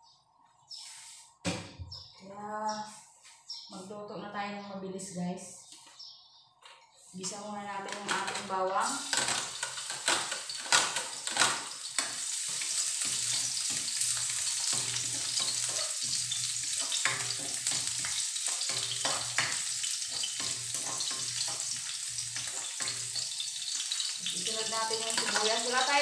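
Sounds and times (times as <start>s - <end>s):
garlic sizzling in oil: 7.8s - 26.0s
spatula scraping a wok: 7.9s - 24.3s, 24.9s - 26.0s
spatula clicking on wok: 25.1s - 25.7s.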